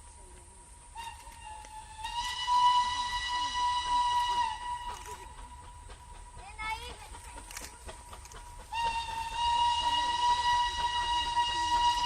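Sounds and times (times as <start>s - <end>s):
steam locomotive whistle blast: 0.9s - 5.4s, 8.6s - 12.0s.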